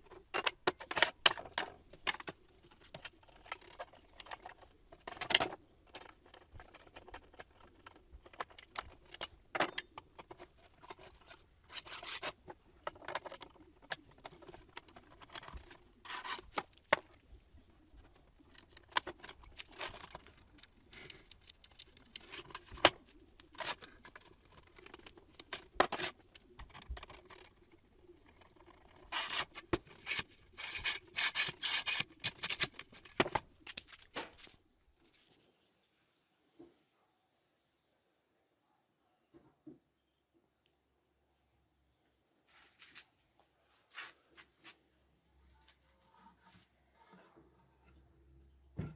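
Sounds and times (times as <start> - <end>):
tools clicking and knocking: 0.0 - 17.2, 28.3 - 34.4.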